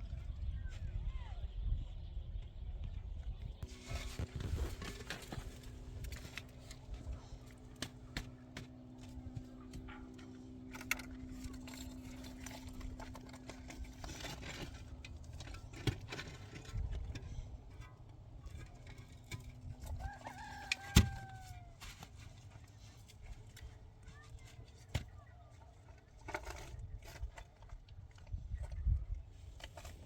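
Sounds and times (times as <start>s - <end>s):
steady low hum: 0.0s - 30.0s
rooster crowing: 20.0s - 21.8s.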